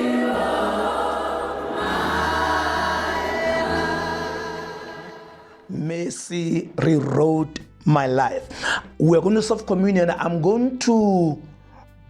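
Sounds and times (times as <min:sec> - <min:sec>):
choir singing gospel: 0:00.0 - 0:05.9.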